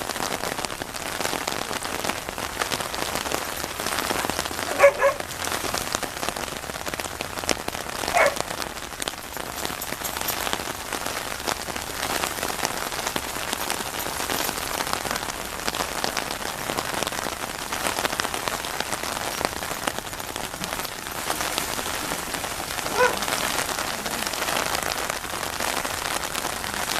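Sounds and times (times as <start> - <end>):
heavy rain: 0.0 - 26.9
dog barking: 3.5 - 5.5, 8.1 - 8.5, 22.7 - 24.3.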